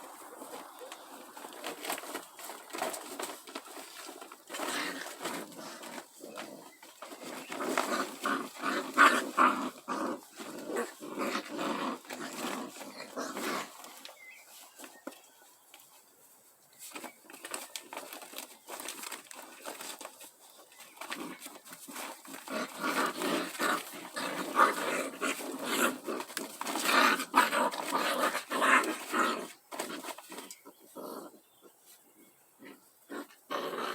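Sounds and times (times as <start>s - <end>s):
animal making rough noises: 4.5s - 13.9s, 21.1s - 31.4s, 32.6s - 33.9s.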